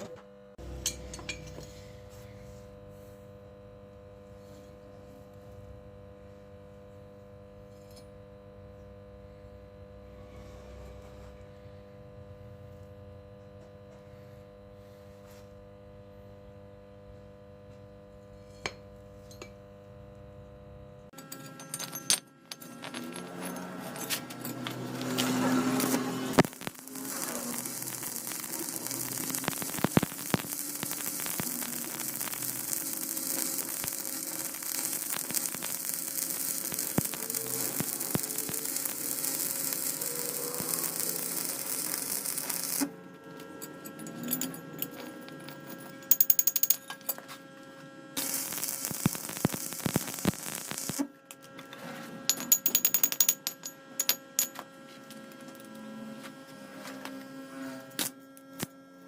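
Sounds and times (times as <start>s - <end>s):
lathe motor hum: 23.2s - 46.0s
cutting hiss: 25.2s - 42.9s, 48.2s - 51.0s.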